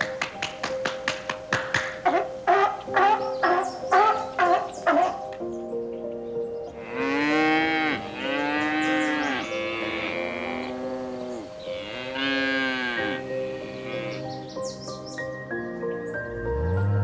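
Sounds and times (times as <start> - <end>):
cattle mooing: 6.8 - 14.3.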